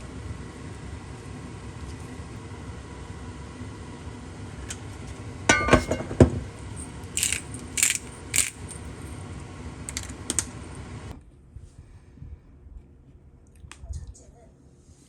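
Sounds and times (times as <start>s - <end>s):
steady background hum: 0.4s - 11.1s
metal utensils clinking: 7.2s - 8.8s, 9.9s - 10.1s.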